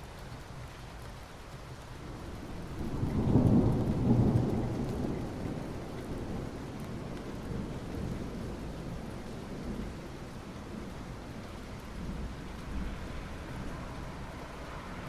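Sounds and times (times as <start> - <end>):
soft rain on asphalt: 0.0 - 15.0.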